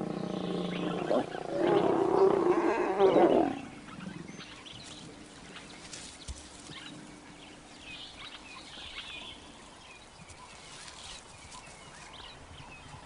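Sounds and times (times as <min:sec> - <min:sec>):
lions snarling: 0:00.0 - 0:04.4.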